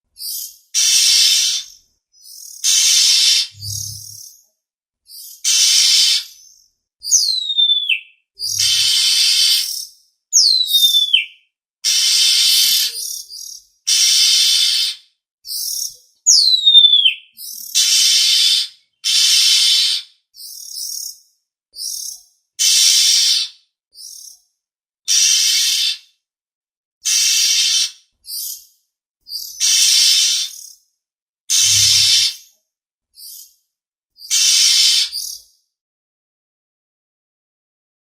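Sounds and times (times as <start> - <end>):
bird harsh rasping calls: 0.2 - 4.2, 5.2 - 9.8, 10.4 - 15.0, 15.6 - 21.1, 21.8 - 23.6, 25.1 - 26.1, 27.0 - 28.6, 29.3 - 30.7, 31.5 - 32.5, 34.2 - 35.4
bird whistles sliding down: 2.7 - 4.2, 8.4 - 9.6, 27.1 - 28.0, 31.5 - 32.4.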